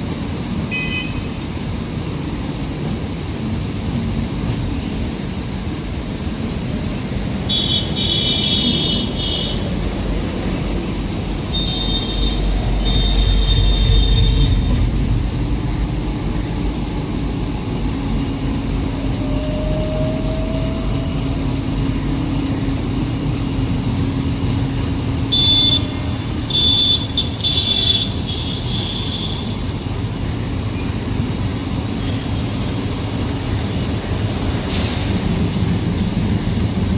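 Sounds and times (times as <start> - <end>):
train rumbling: 0.0 - 36.9
high squeal: 17.9 - 26.2, 31.9 - 35.4.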